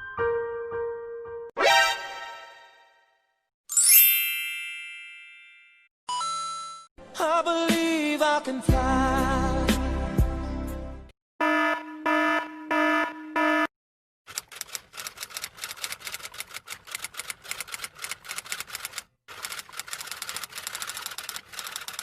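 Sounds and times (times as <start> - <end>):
pulsing buzzer tone: 11.4 - 13.7
rapid even clicking: 14.3 - 22.0.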